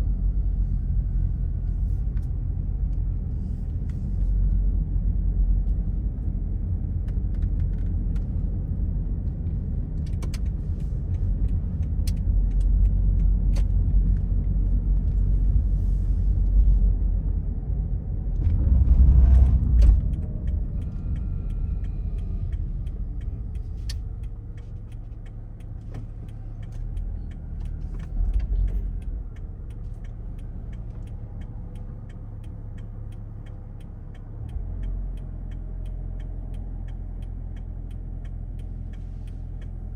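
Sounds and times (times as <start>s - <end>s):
car driving on road: 0.0s - 39.9s
faint ticks: 19.4s - 39.9s.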